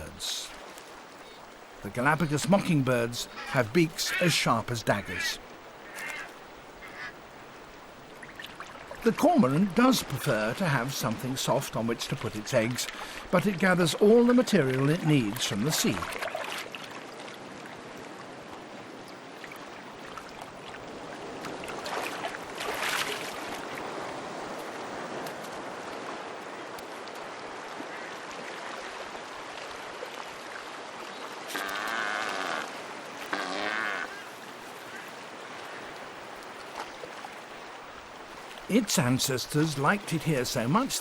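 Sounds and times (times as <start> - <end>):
sea surf washing: 0.0 - 41.0
low wavering animal calls: 31.5 - 35.1.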